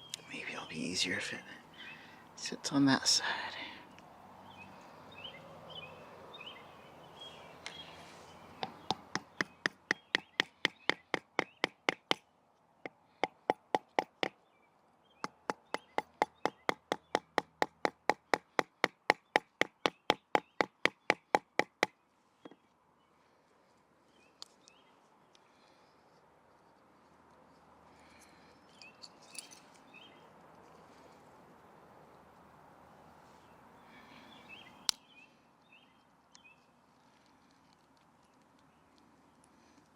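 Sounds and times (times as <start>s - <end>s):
wooden baton knocking on wood: 8.6s - 12.2s, 13.2s - 14.3s, 15.2s - 21.9s.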